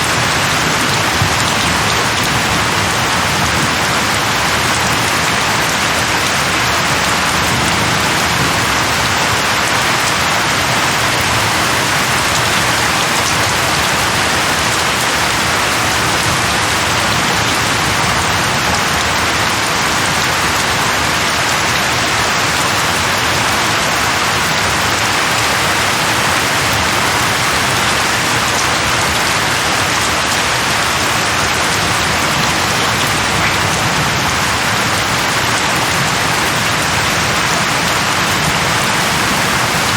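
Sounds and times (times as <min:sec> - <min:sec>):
heavy rain splashing: 0:00.0 - 0:39.9.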